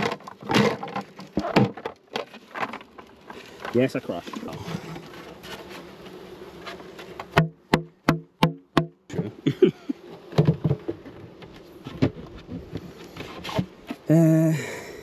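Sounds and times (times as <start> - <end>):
bees buzzing: 0.0 - 15.0
sharp knocks: 7.3 - 9.0.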